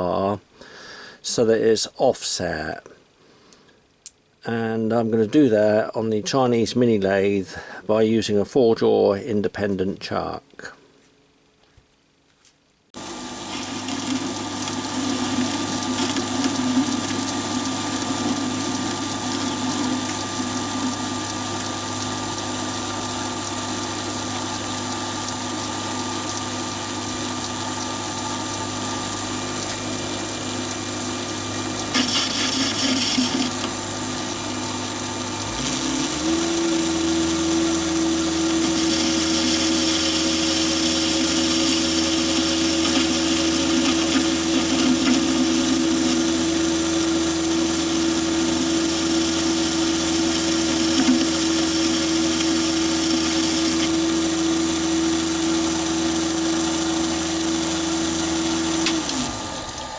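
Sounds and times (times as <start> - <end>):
lathe motor whining: 13.0 - 59.9.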